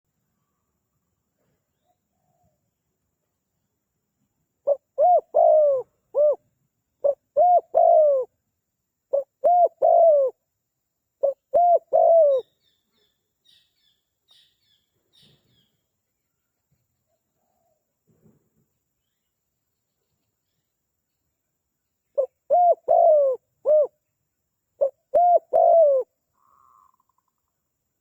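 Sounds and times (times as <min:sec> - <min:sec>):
dove cooing: 0:04.6 - 0:06.4, 0:07.0 - 0:08.3, 0:09.1 - 0:10.4, 0:11.2 - 0:12.5, 0:22.2 - 0:23.9, 0:24.8 - 0:27.2
small bird chirping: 0:11.2 - 0:17.8, 0:18.9 - 0:27.8.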